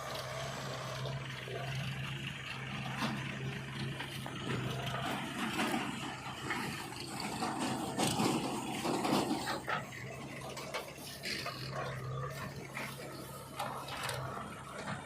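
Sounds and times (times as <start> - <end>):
diesel engine running: 0.0 - 15.0
clattering and rushing noise: 4.8 - 11.8.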